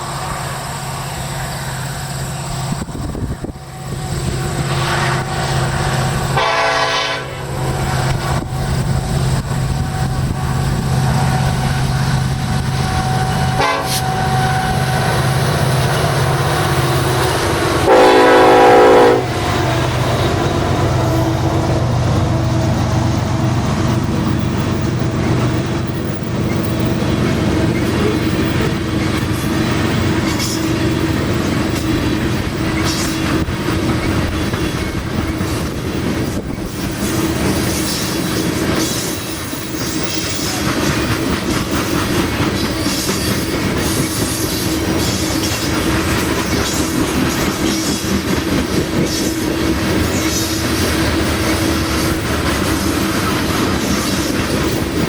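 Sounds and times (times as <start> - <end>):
locomotive engines rumbling: 0.0 - 55.0
wheels clattering on rails: 1.5 - 55.0
train horn blast: 6.2 - 7.9, 13.0 - 15.0, 17.4 - 21.5.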